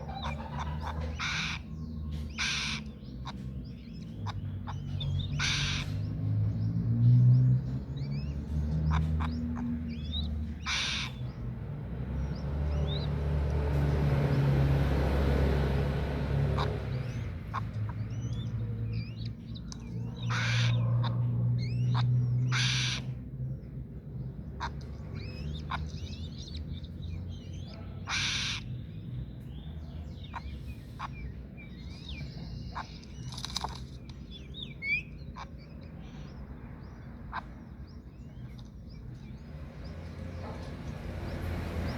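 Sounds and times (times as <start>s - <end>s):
harsh hissing bird calls: 0.0s - 6.2s, 8.8s - 11.5s, 12.2s - 23.2s, 24.6s - 28.9s, 29.6s - 36.4s
birds chirping: 0.0s - 41.9s.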